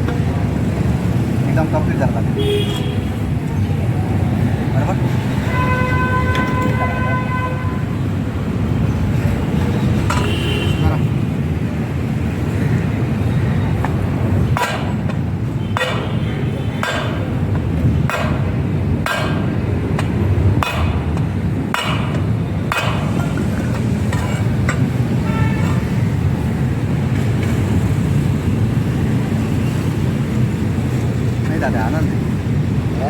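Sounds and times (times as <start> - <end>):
hammer ringing on metal wheel: 20.6 - 23.4.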